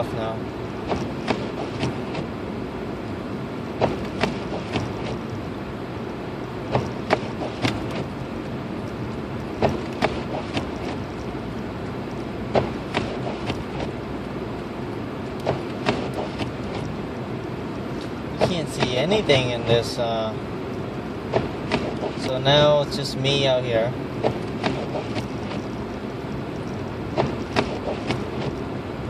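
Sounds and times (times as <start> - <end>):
car engine and tyre rumble: 0.0 - 29.0
sharp clicks and knocks: 0.9 - 2.3, 3.8 - 5.2, 6.7 - 8.1, 9.6 - 11.0, 15.3 - 16.9, 21.3 - 22.7, 24.2 - 25.7, 27.2 - 28.6.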